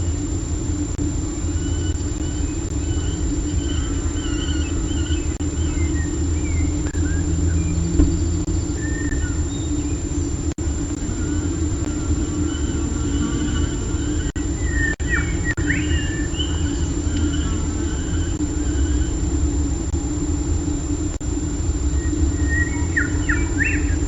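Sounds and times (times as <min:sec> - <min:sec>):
low rumble: 0:05.4 - 0:11.0.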